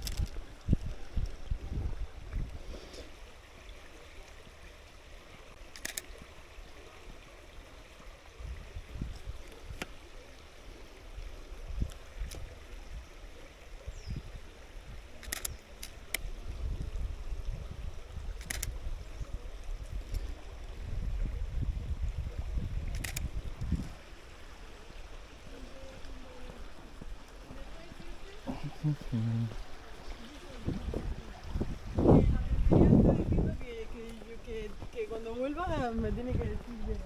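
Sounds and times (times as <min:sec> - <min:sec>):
stream rushing: 0:00.0 - 0:37.0
camera shutter clicking: 0:05.7 - 0:06.1, 0:15.2 - 0:16.0, 0:18.4 - 0:18.7, 0:22.9 - 0:23.3.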